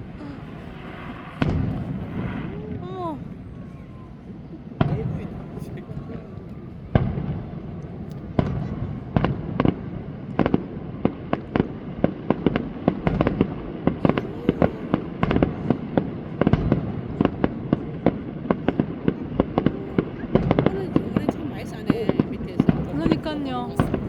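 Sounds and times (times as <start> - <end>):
low rumble: 0.0 - 9.2
fireworks bangs and cracks: 0.0 - 24.0.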